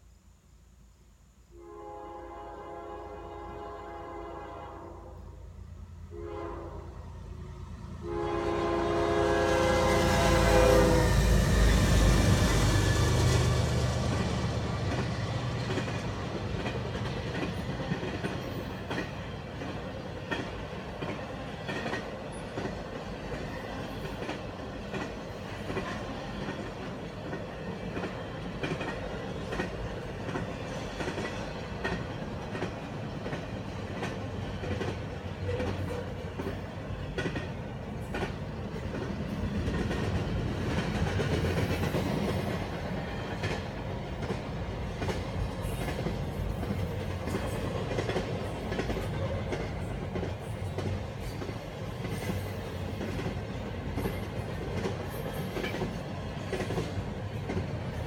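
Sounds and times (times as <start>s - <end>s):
locomotive horn blasts: 1.5s - 5.4s, 6.1s - 7.0s, 8.0s - 11.4s
locomotive rumbling past: 5.9s - 58.0s
freight cars clickety-clack: 11.4s - 58.0s.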